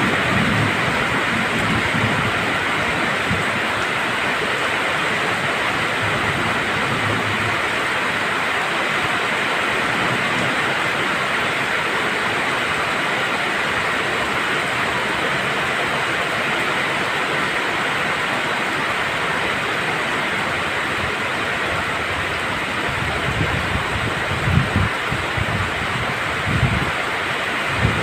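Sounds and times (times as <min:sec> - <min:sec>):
low rumble of thunder: 0:00.0 - 0:03.7
heavy rainfall hissing: 0:00.0 - 0:28.0.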